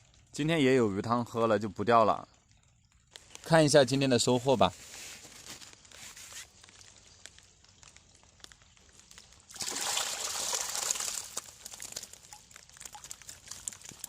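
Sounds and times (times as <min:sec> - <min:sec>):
water pouring and splashing: 0:00.0 - 0:00.5, 0:02.0 - 0:14.0
faint rustling: 0:03.1 - 0:09.4.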